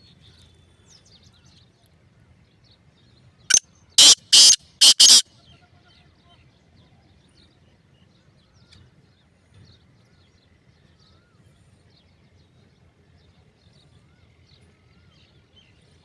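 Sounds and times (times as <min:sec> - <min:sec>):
small birds chirping and twittering: 0:00.0 - 0:16.0
curling bird whistles: 0:04.0 - 0:05.2.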